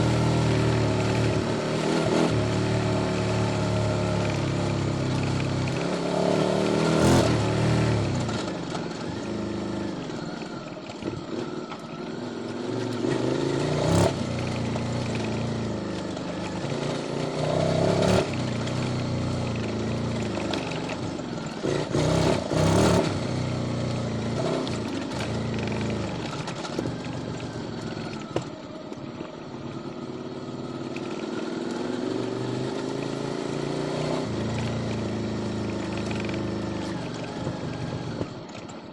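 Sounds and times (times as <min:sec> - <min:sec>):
motorcycle engine revving: 0:00.0 - 0:38.9
exhaust cracks: 0:12.8 - 0:31.4, 0:34.3 - 0:38.7.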